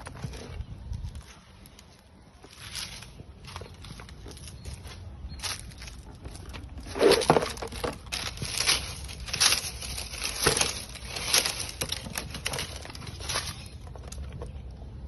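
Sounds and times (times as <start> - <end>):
leaves rustling and crunching: 0.0 - 14.6.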